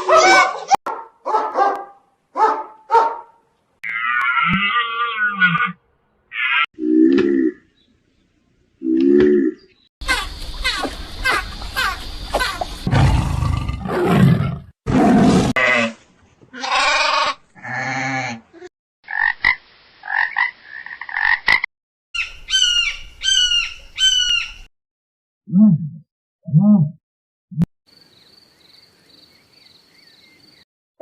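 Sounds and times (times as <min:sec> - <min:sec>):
animal calls: 0:08.9 - 0:13.7.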